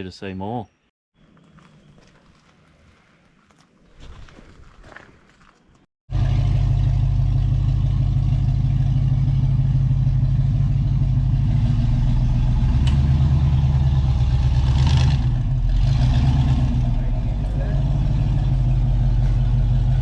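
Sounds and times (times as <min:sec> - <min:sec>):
truck engine running at low revs: 0:06.1 - 0:20.0.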